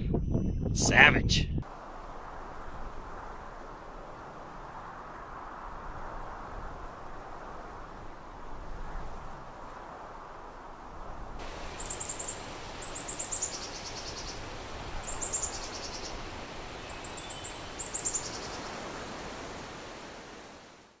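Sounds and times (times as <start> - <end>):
steady outdoor hiss: 0.8 - 21.0
small bird singing: 11.7 - 14.4, 15.0 - 18.8.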